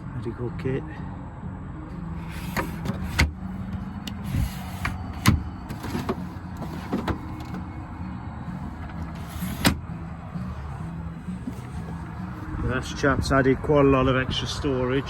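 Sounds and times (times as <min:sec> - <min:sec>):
latches and panels clicking: 0:02.3 - 0:07.6, 0:08.8 - 0:09.8.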